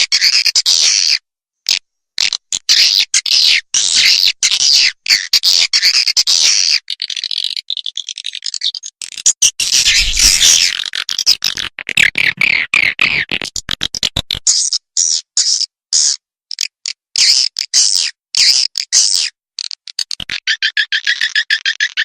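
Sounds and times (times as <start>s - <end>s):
short bird chirps: 9.3s - 10.8s.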